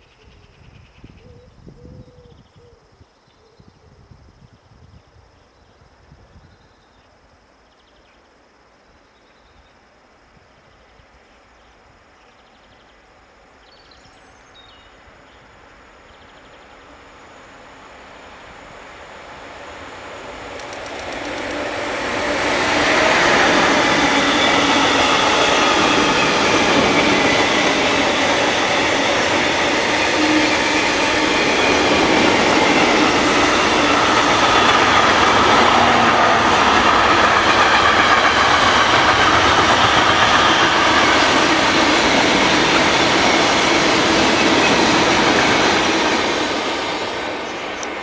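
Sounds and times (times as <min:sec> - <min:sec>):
freight train passing: 0:10.8 - 0:48.0
wheels running on rails: 0:19.2 - 0:48.0.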